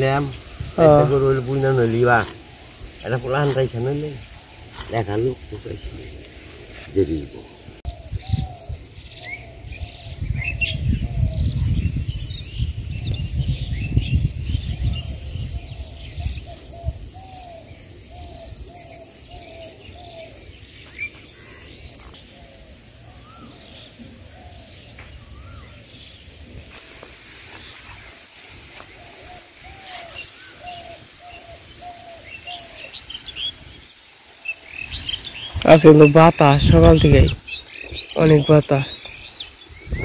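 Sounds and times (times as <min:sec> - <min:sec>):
wind buffeting microphone: 0:00.0 - 0:18.8, 0:34.8 - 0:40.0
small birds chirping: 0:00.0 - 0:40.0.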